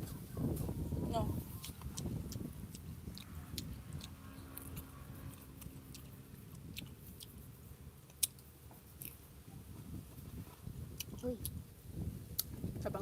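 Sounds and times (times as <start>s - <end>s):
wet chewing sounds: 1.4s - 12.8s
small mouth clicks: 1.6s - 7.5s, 8.1s - 9.2s.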